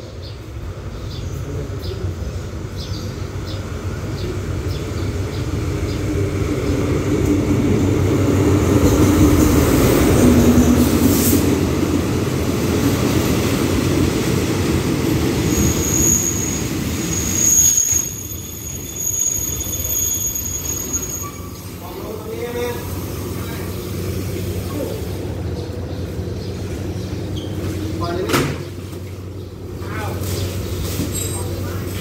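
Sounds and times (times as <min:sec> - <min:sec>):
train engine and wheels rumbling: 0:00.0 - 0:32.0
high brake squeal: 0:15.5 - 0:22.3, 0:31.0 - 0:31.8.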